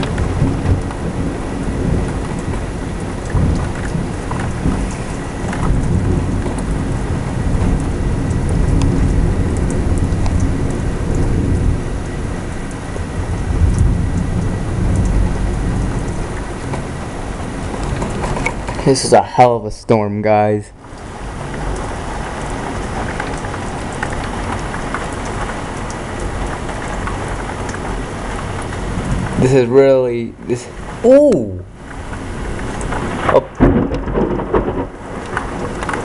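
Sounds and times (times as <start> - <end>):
heavy rain downpour: 0.0 - 36.0
sharp patters of raindrops: 0.0 - 36.0
thunder rumbling: 0.0 - 36.0.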